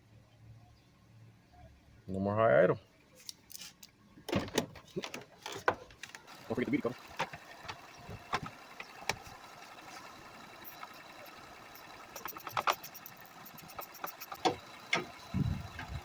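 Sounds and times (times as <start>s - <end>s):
car engine idling: 5.2s - 16.0s
plastic engine cover clicks and knocks: 7.2s - 9.3s.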